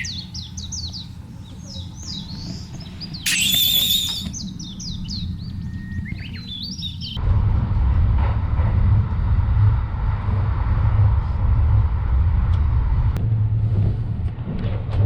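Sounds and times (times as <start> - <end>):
sharp click: 3.3 - 4.4
train rumble inside carriage: 7.2 - 15.0.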